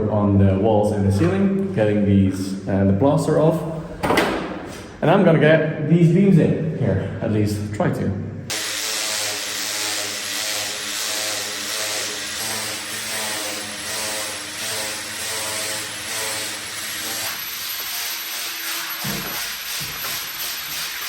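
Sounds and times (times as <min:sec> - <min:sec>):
power tool motor running: 0:08.5 - 0:21.0.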